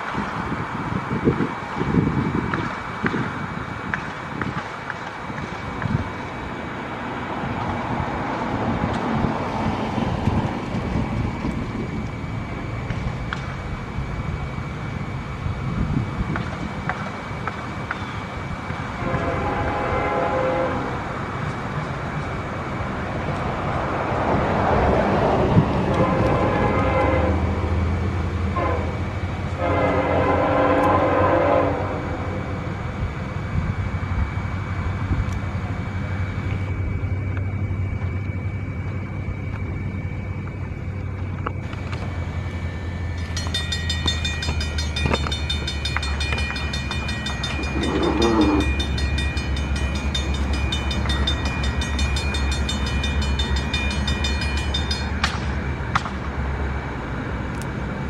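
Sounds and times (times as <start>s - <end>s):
diesel locomotive engine rumble: 0.0s - 58.0s
locomotive horn blasts: 19.0s - 21.0s, 25.8s - 27.7s, 28.5s - 32.2s, 43.4s - 49.4s
rapid high ringing: 42.3s - 56.0s.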